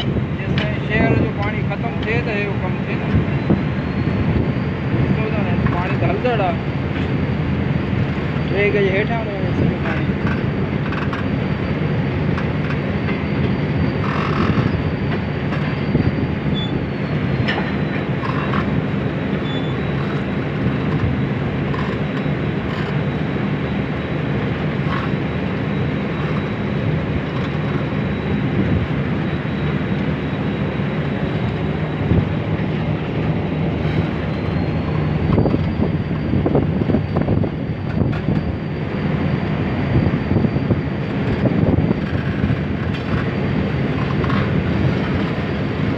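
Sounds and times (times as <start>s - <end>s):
thin high whine: 0.0s - 45.9s
train coach rumbling: 0.0s - 45.9s.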